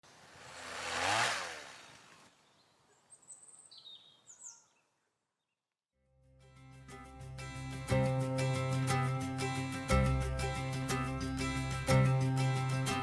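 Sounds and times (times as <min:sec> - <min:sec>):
high falling bird chirps: 0:00.4 - 0:05.1.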